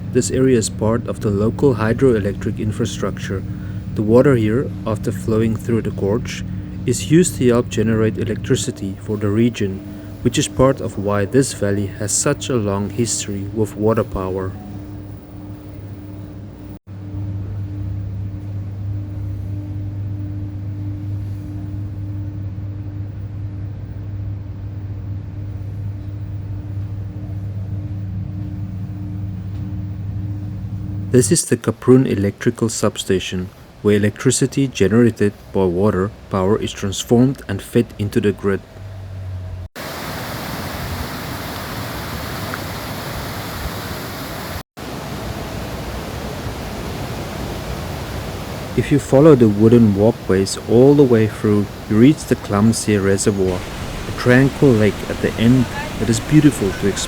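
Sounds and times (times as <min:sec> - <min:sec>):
white water rushing through gorge: 0:00.0 - 0:14.6, 0:39.8 - 0:57.0
deep electrical hum: 0:00.0 - 0:39.7, 0:48.6 - 0:57.0.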